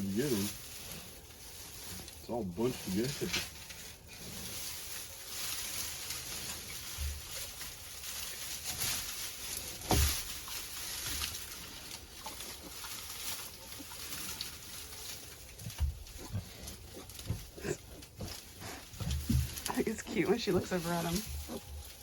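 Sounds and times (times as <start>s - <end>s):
pig grunting: 16.2s - 21.7s.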